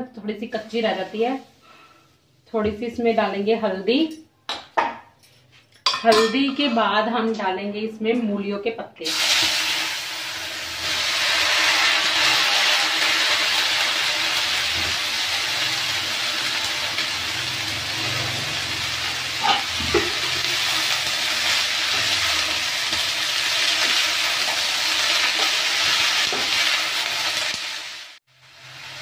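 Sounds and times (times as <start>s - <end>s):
leaves sizzling in hot oil: 0.6s - 1.9s, 9.0s - 29.0s
metal spoon clinking on pan: 5.2s - 6.8s.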